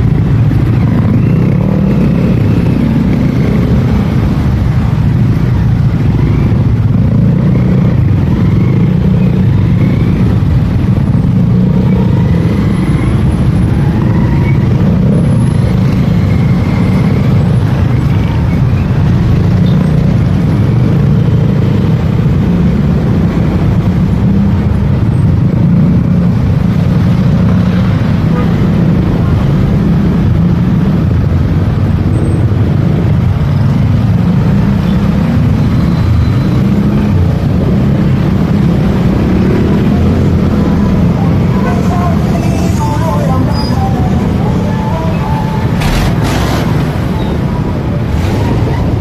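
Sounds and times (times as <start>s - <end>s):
motorcycle engine rumble: 0.0s - 49.0s
faint passing traffic: 27.7s - 49.0s.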